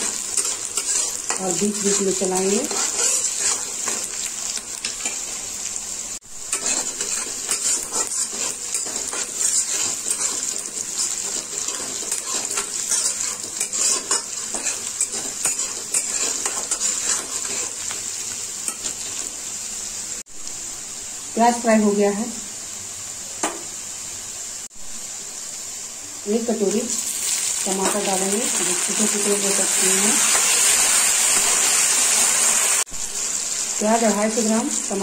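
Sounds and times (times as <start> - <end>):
metal spatula scraping a pan: 0.0 - 4.3, 6.5 - 17.9
onions sizzling in hot oil: 0.0 - 35.0.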